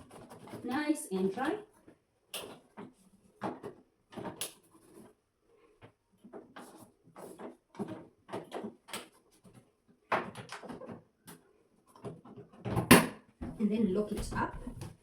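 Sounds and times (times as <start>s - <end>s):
plastic clicks and knocks: 5.8s - 13.2s.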